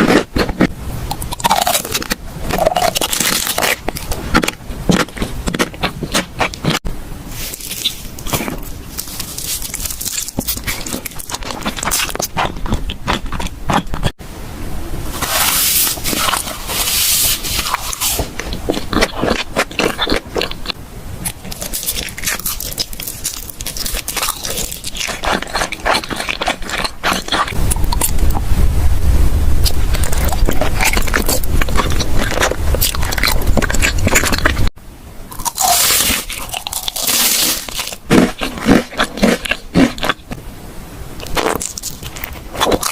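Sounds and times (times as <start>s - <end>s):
crunching eating sounds: 0.0s - 14.2s, 15.2s - 28.5s, 29.6s - 40.4s, 41.2s - 42.9s
hissy crinkling: 15.1s - 20.6s.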